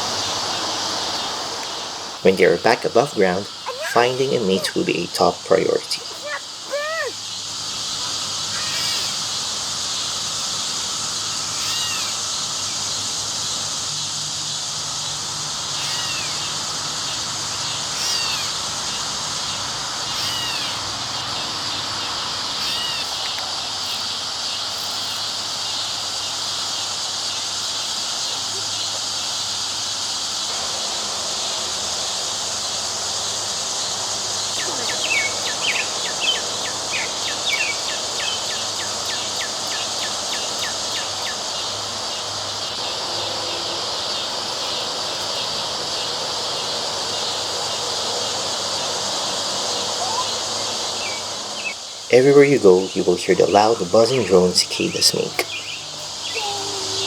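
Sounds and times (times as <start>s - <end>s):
cicadas buzzing drone: 0.0s - 57.0s
bird chirps: 3.1s - 13.0s, 15.8s - 24.1s, 34.3s - 41.7s, 49.7s - 57.0s.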